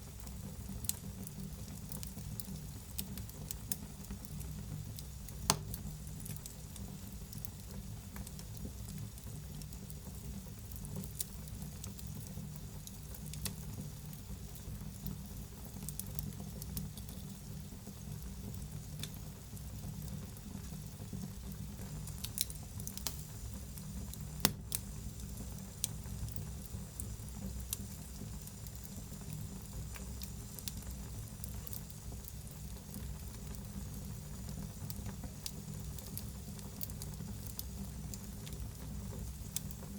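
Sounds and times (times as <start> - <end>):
wood fire crackling and hissing: 0.0 - 39.9
sharp pops of fire: 5.3 - 6.4, 21.8 - 23.4, 24.0 - 26.4.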